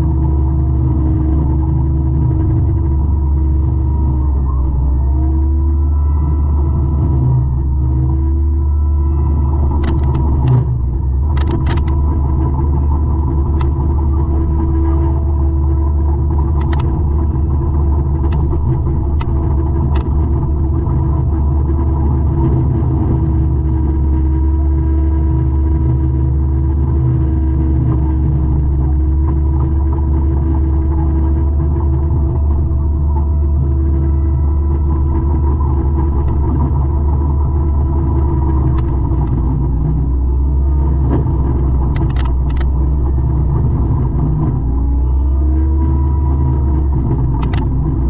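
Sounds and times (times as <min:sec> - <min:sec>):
diesel engine drone: 0:00.0 - 0:48.0
sharp clicks and knocks: 0:09.6 - 0:12.5, 0:13.2 - 0:14.4, 0:16.3 - 0:17.4, 0:18.1 - 0:20.5, 0:34.7 - 0:40.0, 0:41.0 - 0:45.0, 0:46.7 - 0:48.0.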